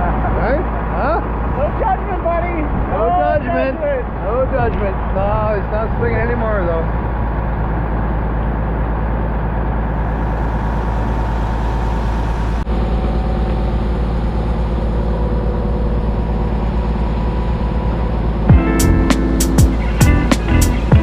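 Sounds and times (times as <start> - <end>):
truck engine rumbling: 0.0 - 21.0.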